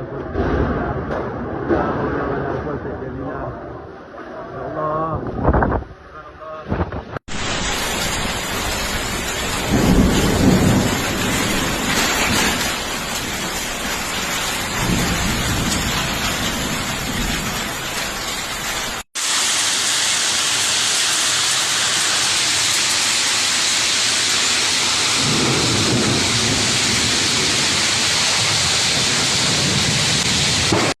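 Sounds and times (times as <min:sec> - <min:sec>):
low rumbles of wind or thunder: 0:05.0 - 0:19.0, 0:25.0 - 0:31.0
heavy rain and hail: 0:07.2 - 0:31.0.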